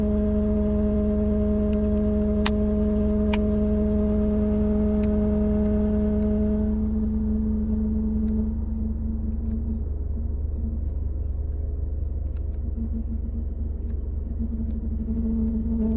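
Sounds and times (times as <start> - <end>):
car humming tone: 0.0 - 15.9
low rumble: 0.0 - 15.9
sharp clicks: 12.2 - 12.8.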